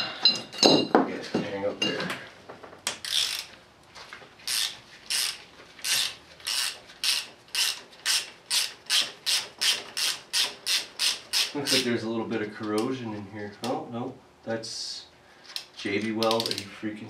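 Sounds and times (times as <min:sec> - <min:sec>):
ratchet wrench clicking: 0:03.0 - 0:03.5, 0:04.4 - 0:11.9.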